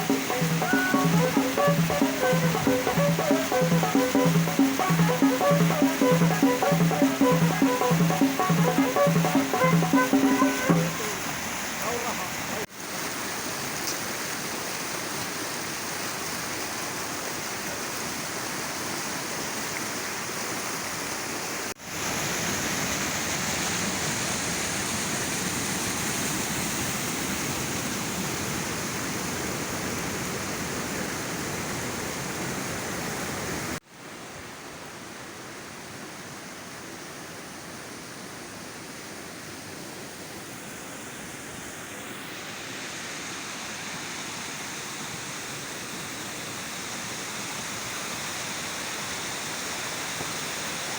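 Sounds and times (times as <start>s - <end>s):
waterfall rushing: 0.0s - 13.2s.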